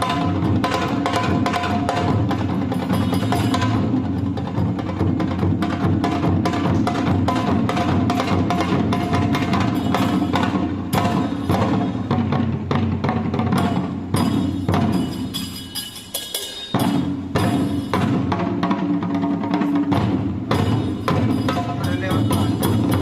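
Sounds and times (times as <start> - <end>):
ringing percussion tones: 0.0 - 4.7, 8.2 - 12.3, 13.5 - 18.8, 19.6 - 23.0
fast drum strikes: 0.0 - 23.0.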